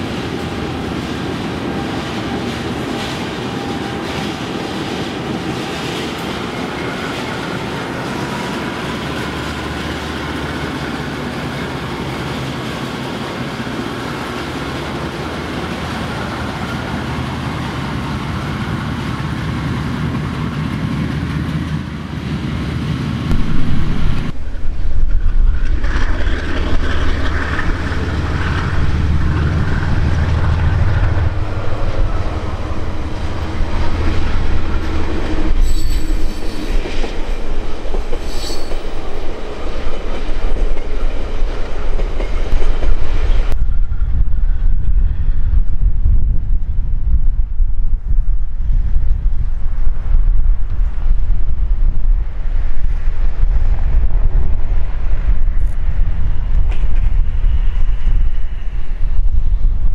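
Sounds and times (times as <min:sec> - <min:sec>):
diesel locomotive running: 0:00.0 - 0:59.9
passenger train rumbling: 0:00.0 - 0:59.9
high wheel squeals: 0:34.9 - 0:37.4, 0:38.1 - 0:39.1.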